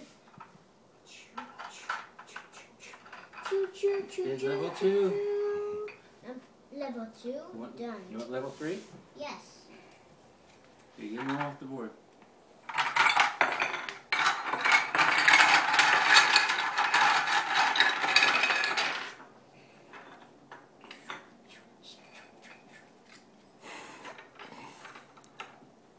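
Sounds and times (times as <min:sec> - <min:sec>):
puzzle pieces clattering: 0:12.8 - 0:19.2.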